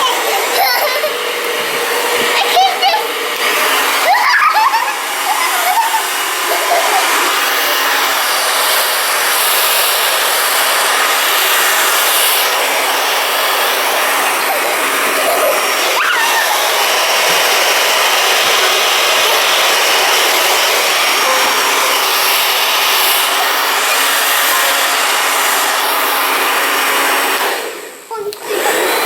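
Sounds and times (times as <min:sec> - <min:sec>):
child's voice: 0:00.0 - 0:01.2, 0:02.2 - 0:03.2, 0:28.1 - 0:28.8
hair dryer blowing: 0:00.0 - 0:29.0.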